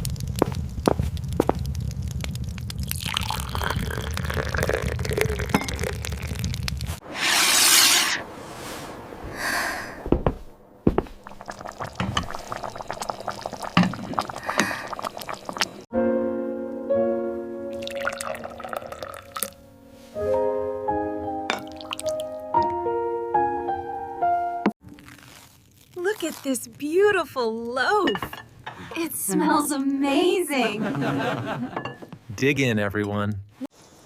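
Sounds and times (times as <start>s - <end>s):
fire crackling: 0.0s - 15.9s, 24.8s - 28.0s
liquid sounds: 1.1s - 8.3s, 10.9s - 15.9s, 17.8s - 19.6s, 21.6s - 22.4s, 24.8s - 27.2s
loud hiss: 7.0s - 10.0s.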